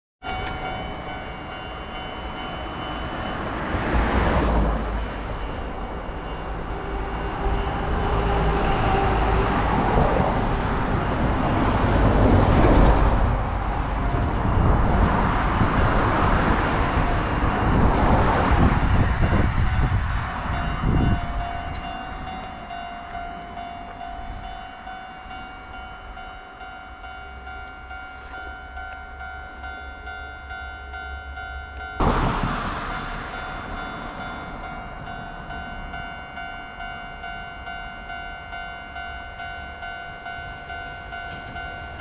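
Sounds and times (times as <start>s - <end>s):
level crossing bell ringing: 0.2s - 9.4s, 18.9s - 32.1s, 32.9s - 42.0s
train wheels rumbling on rails: 0.2s - 42.0s.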